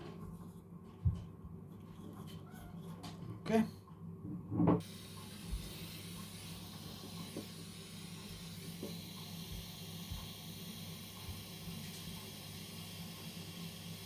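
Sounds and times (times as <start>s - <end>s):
gas torch flame hissing: 4.8s - 14.0s.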